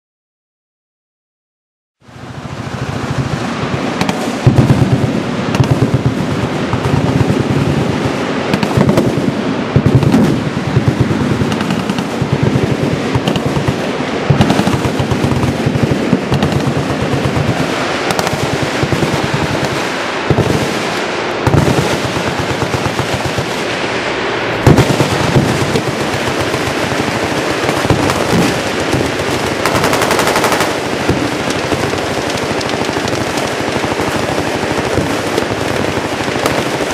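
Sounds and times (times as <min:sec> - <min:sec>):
machine guns firing: 0:02.8 - 0:23.7, 0:24.6 - 0:36.9
loud single gunshots: 0:13.1 - 0:23.4.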